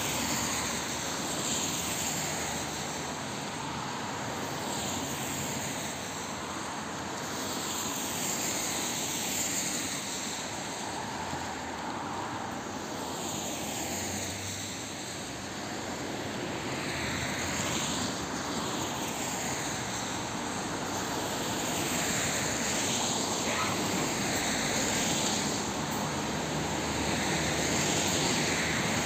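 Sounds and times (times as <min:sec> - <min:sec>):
train rushing rumble: 0:12.4 - 0:29.0.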